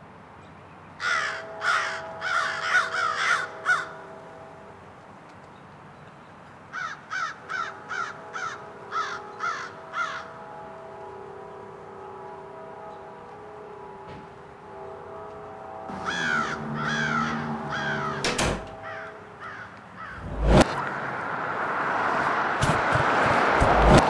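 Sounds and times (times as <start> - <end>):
crow cawing: 1.0 - 4.1, 6.7 - 10.3, 15.9 - 20.2.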